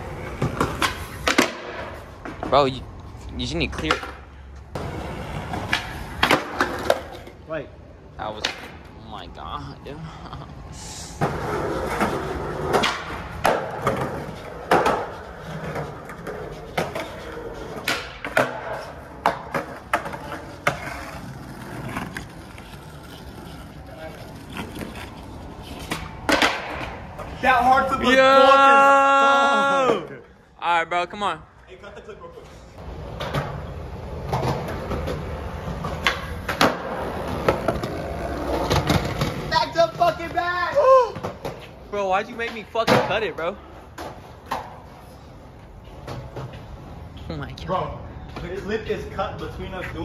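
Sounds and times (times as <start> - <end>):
skateboard rolling on hard ground: 0.0 - 2.5, 3.8 - 7.4, 11.2 - 27.9, 32.8 - 47.1
skateboard wooden clacks: 11.2 - 23.6, 25.8 - 27.3.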